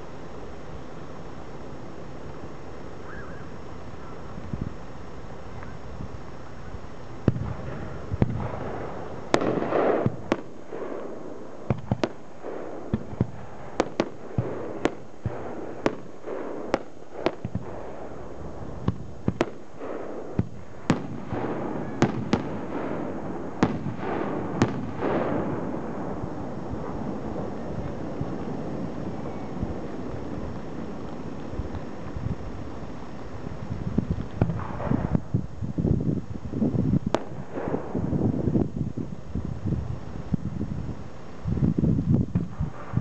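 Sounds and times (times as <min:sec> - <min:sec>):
continuous noisy wash: 0:00.0 - 0:43.0
firework shells bursting: 0:07.2 - 0:35.4, 0:37.0 - 0:38.6.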